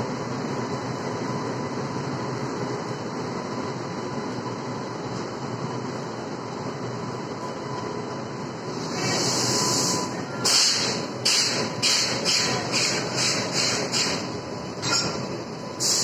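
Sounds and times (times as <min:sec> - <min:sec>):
train coaches rolling: 0:08.7 - 0:16.0.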